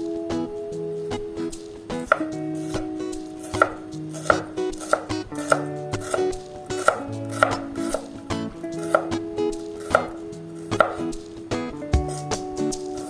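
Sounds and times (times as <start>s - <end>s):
light background music: 0.0s - 13.0s
knife chopping on cutting board: 2.0s - 8.1s, 8.8s - 9.2s, 9.8s - 10.2s, 10.8s - 11.0s.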